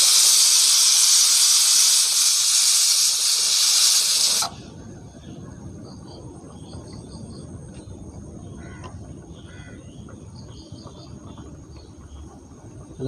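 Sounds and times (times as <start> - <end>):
steam hissing from a pot: 0.0 - 4.8.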